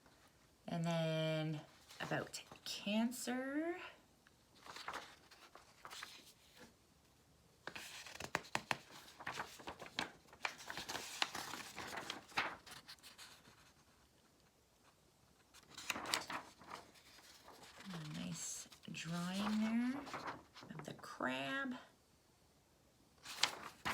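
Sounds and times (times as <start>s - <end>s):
paper pages rustling: 4.6s - 6.8s, 7.6s - 21.1s, 23.2s - 23.9s.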